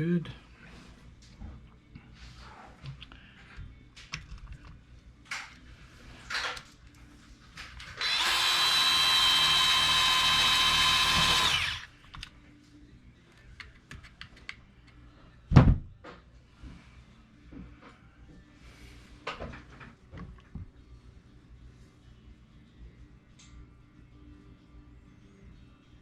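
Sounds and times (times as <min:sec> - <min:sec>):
power drill running: 0:08.0 - 0:11.9
thump: 0:15.5 - 0:15.9.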